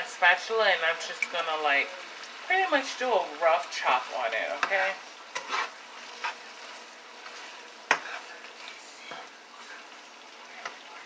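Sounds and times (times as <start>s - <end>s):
fish sizzling in a pan: 0.0s - 11.0s.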